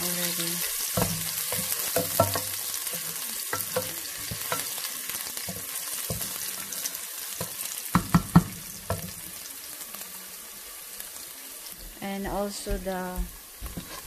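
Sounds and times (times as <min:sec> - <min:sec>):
garlic and onion sizzling in oil: 0:00.0 - 0:14.0
knocks on a pot: 0:07.9 - 0:09.1
wooden spoon scraping a pot: 0:13.7 - 0:14.0.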